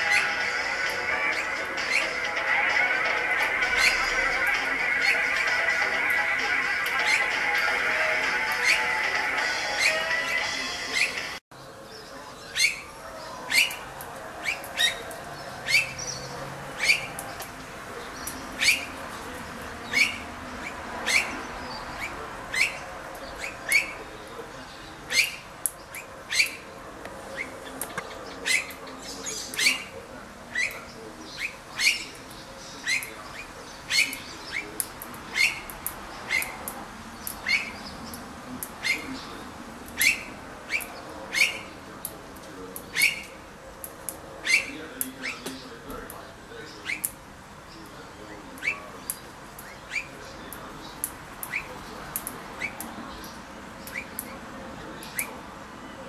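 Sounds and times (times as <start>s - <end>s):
bird chirping: 0.0s - 56.0s
faint background noise: 0.0s - 56.0s.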